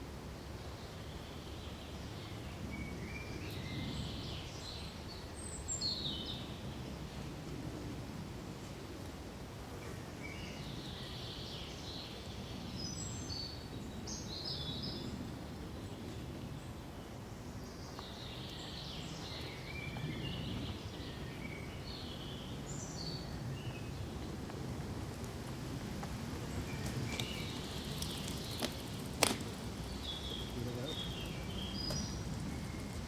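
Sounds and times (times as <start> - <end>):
wind through pine trees: 0.0 - 33.0
small birds chirping: 9.8 - 24.2, 26.4 - 33.0.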